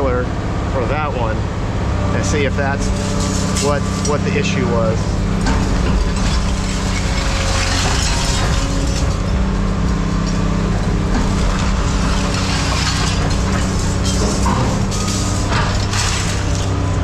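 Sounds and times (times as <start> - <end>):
engine running: 0.0 - 17.0
mechanical rattle and clatter: 2.3 - 17.0.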